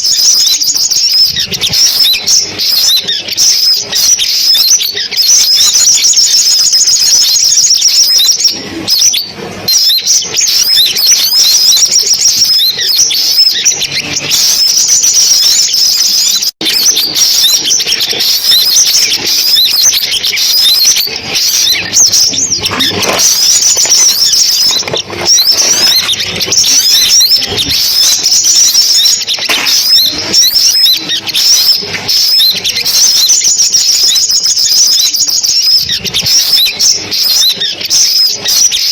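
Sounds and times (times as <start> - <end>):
sunbird chirping and trilling: 0.0 - 38.9.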